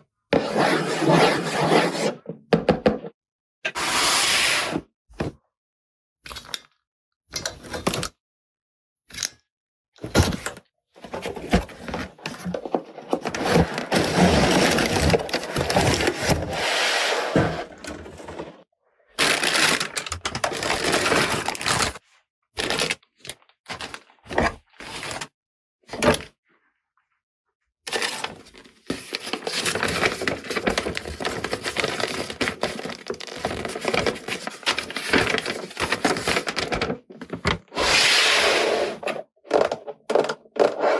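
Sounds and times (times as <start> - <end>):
plastic toy packaging handled: 11.0 - 18.6, 19.2 - 22.0, 27.9 - 38.0, 38.9 - 40.9.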